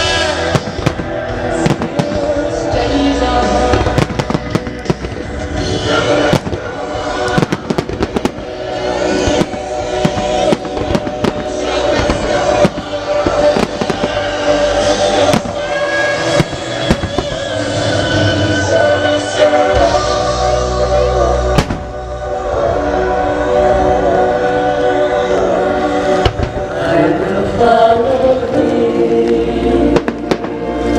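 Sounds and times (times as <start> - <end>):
fireworks bursting and crackling: 0.0 - 18.7, 21.5 - 22.1, 26.2 - 26.8, 30.0 - 30.9
musical theatre music over speakers: 0.0 - 30.9.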